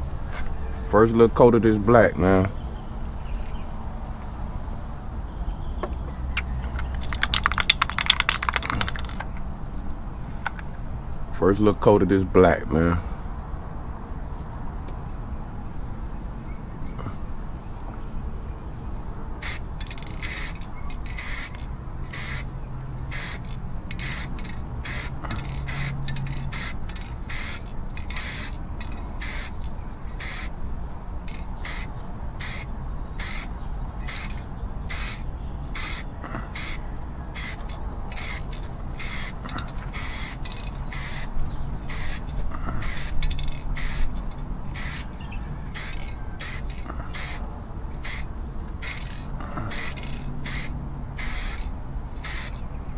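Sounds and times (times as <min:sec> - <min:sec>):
spray paint hissing bursts: 0:06.8 - 0:09.2, 0:19.4 - 0:30.6, 0:31.2 - 0:35.2, 0:35.8 - 0:47.4, 0:48.0 - 0:52.6.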